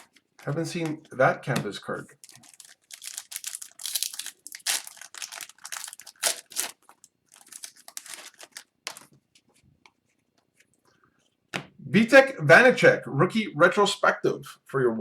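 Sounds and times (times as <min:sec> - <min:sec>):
card pack wrapper crinkling: 0:02.1 - 0:09.1.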